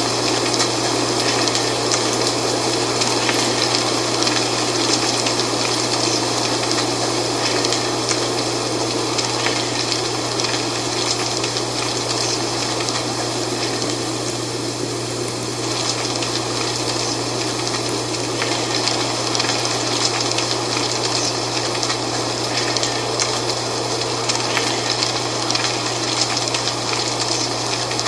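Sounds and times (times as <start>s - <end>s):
dry leaves rustling: 15.4s - 28.0s.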